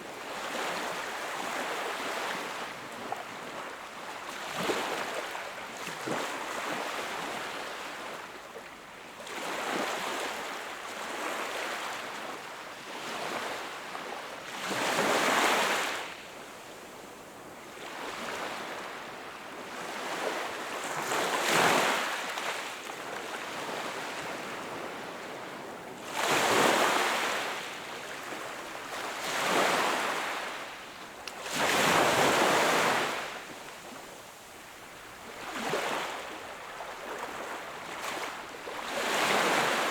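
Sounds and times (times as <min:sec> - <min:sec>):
sea waves breaking on shore: 0:26.0 - 0:39.9.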